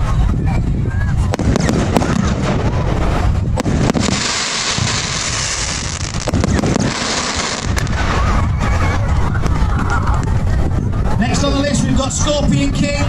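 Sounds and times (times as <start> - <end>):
low rumble: 0.0 - 11.2
firework launch bangs: 1.3 - 8.3.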